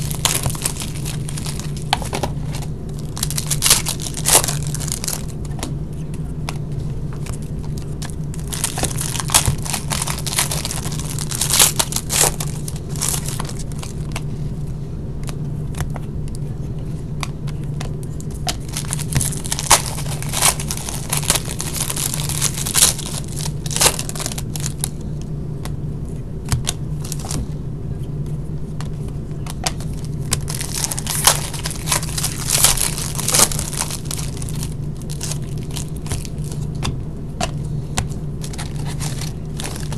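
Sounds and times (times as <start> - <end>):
wrappers tearing and crinkling: 0.0 - 5.4, 7.2 - 14.1, 18.5 - 25.0, 27.0 - 27.4, 29.6 - 36.7, 38.4 - 39.9
cards being handled: 0.0 - 14.4, 15.2 - 25.8, 28.2 - 39.9
steady low hum: 0.0 - 39.9.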